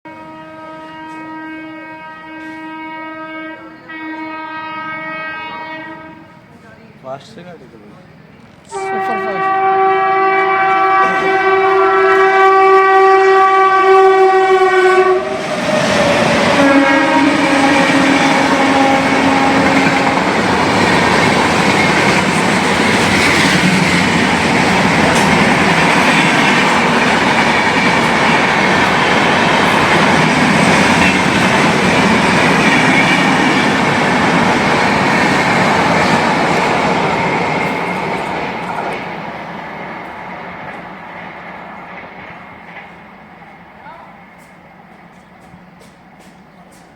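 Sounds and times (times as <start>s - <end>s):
train horn: 0.1s - 6.6s, 8.7s - 34.4s
wheels clattering on rail joints: 19.2s - 43.2s.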